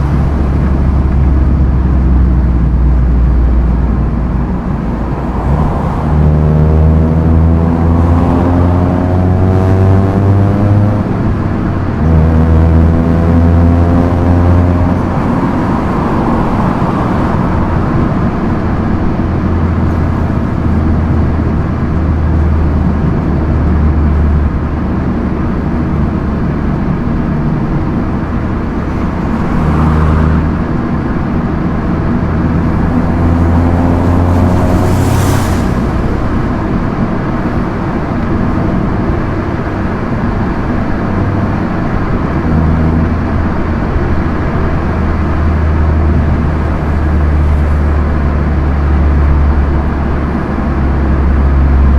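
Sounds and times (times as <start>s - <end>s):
car engine droning: 0.0s - 51.9s
brief whooshes: 32.7s - 37.8s.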